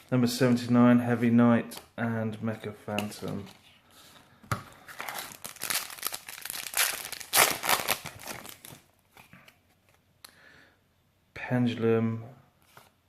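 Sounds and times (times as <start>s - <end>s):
foil wrapper crinkling: 4.9s - 8.9s.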